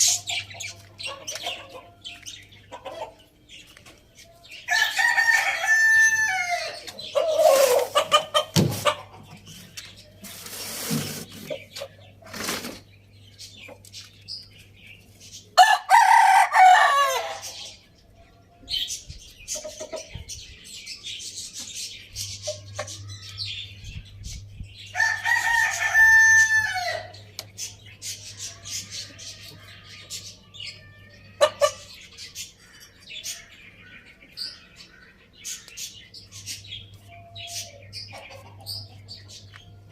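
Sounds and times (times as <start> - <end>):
chickens clucking: 0.0 - 15.6, 18.7 - 24.7, 25.4 - 39.9
rooster crowing: 4.7 - 6.8, 15.6 - 17.4, 25.0 - 27.2.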